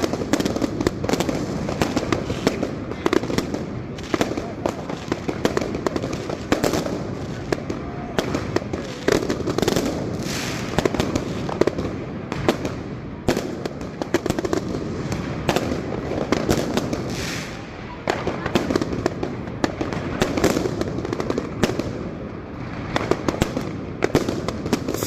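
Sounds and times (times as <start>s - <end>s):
continuous firework crackle: 0.0s - 25.0s
firework bangs and pops: 0.0s - 25.0s
rising rocket hisses: 10.2s - 10.8s.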